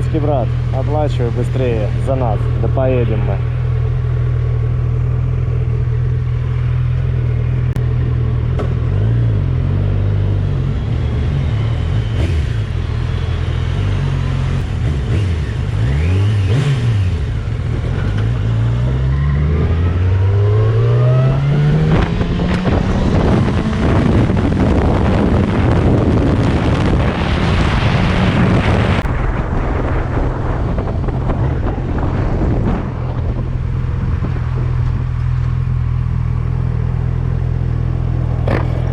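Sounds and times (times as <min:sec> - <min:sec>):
motorcycle engine revving: 0:00.0 - 0:38.9
rushing wind noise: 0:10.7 - 0:36.2.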